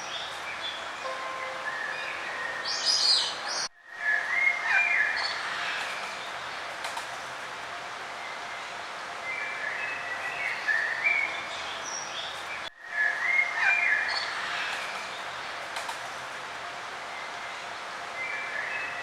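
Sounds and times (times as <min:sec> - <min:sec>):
songbirds chirping: 0:00.0 - 0:06.8, 0:08.0 - 0:15.7
steady background hiss: 0:00.0 - 0:19.0.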